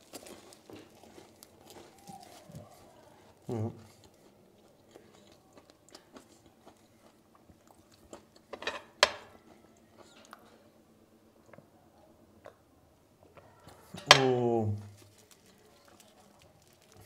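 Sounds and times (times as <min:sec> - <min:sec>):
person chewing crunchy sandwich: 0:00.0 - 0:08.6, 0:14.9 - 0:17.0.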